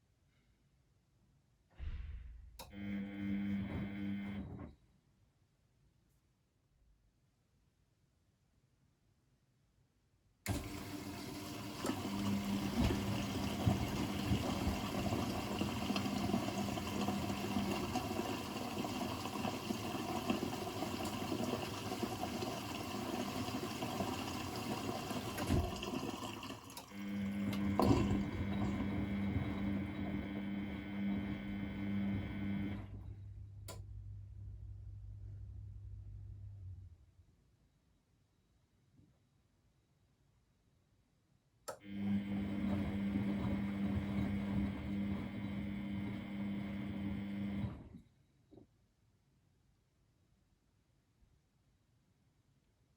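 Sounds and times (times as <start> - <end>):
washing machine filling with water: 2.8 - 4.4, 10.5 - 33.2, 41.8 - 48.0.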